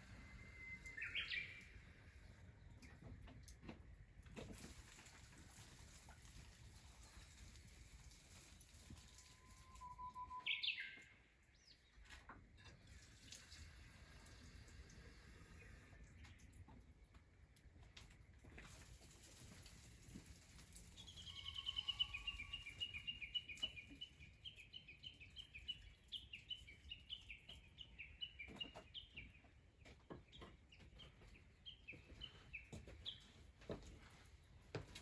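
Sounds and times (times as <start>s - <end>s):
small bird calling high notes: 9.4s - 11.1s, 21.2s - 22.9s.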